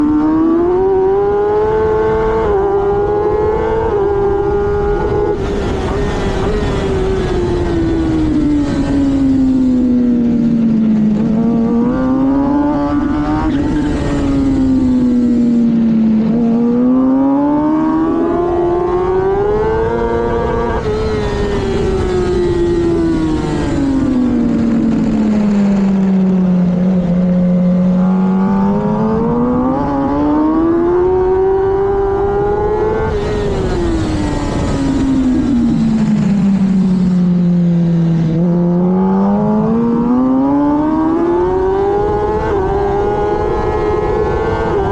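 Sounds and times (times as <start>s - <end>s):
motorcycle engine at racing speed: 0.0s - 44.9s.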